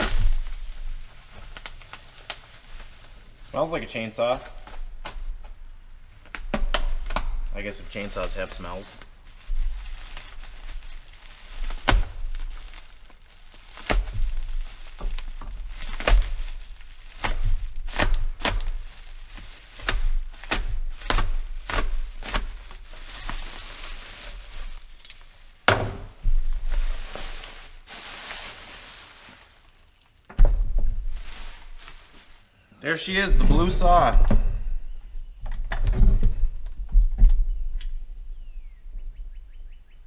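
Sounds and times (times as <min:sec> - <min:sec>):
packaging rustling: 0:00.0 - 0:30.2, 0:30.9 - 0:32.5
knocks and thuds: 0:25.7 - 0:26.4, 0:30.3 - 0:31.2.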